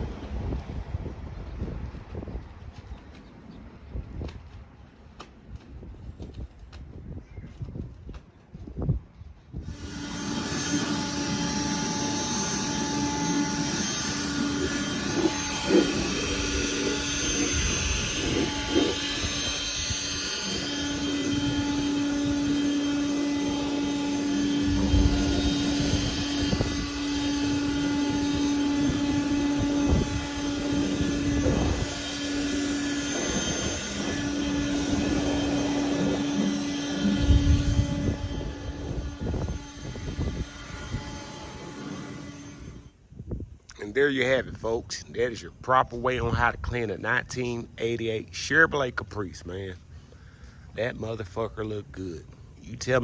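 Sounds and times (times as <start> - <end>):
whining electric motor: 9.5 - 43.0.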